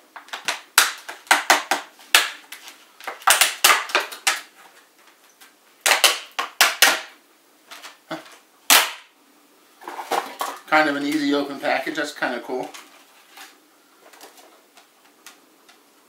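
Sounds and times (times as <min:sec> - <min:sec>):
plastic packaging snapping: 0:00.2 - 0:04.5, 0:05.8 - 0:07.1, 0:08.7 - 0:09.1.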